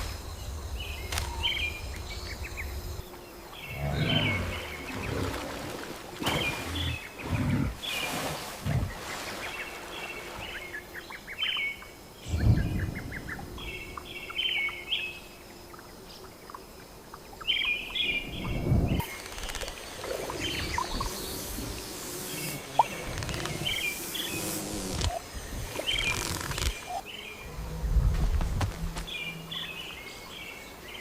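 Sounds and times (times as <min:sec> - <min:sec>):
birds chirping and twittering: 0:00.0 - 0:31.0
low rumbles: 0:12.2 - 0:14.0.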